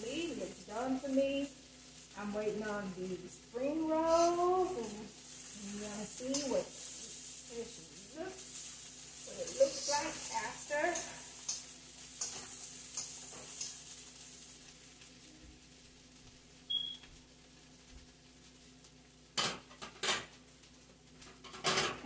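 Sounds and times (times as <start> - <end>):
fried rice sizzling in a wok: 0.0 - 22.0
spatula scraping a wok: 3.8 - 14.6.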